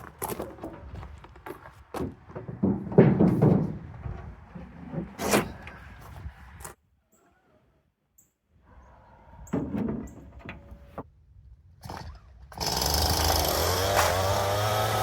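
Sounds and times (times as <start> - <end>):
knocks and clunks: 0.0 - 6.1, 9.5 - 11.1.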